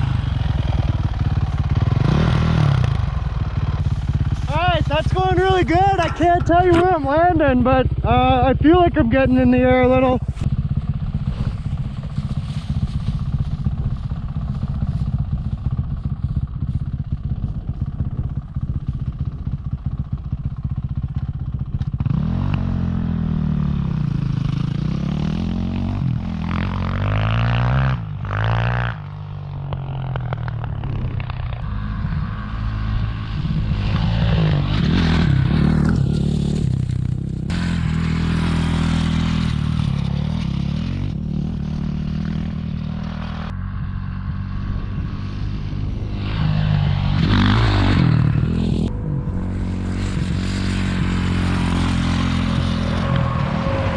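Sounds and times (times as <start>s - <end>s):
dirt bike engine revving: 0.0s - 15.1s, 21.9s - 29.3s, 29.9s - 53.9s.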